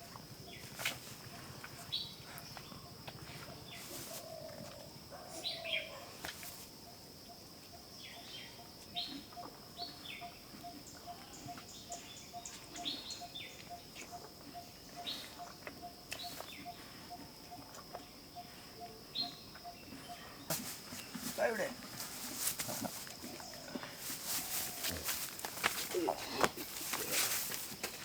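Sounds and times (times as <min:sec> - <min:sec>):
high insect drone: 0:00.0 - 0:28.0
small birds chirping: 0:08.0 - 0:22.2.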